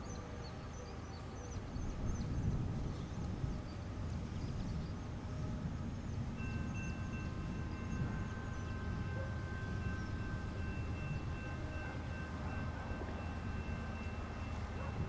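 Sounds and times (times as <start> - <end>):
freight train rumbling: 0.0 - 15.0
steady high-pitched tone: 5.4 - 15.0.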